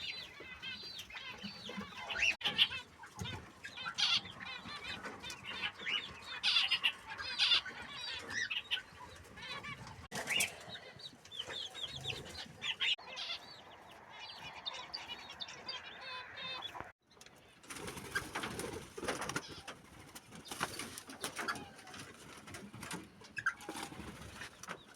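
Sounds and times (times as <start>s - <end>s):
birds chirping: 0.0s - 24.9s
wings flapping: 17.6s - 24.8s.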